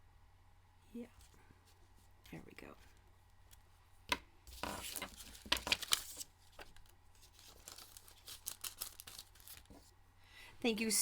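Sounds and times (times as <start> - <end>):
paper rustling and crinkling: 4.5 - 9.9.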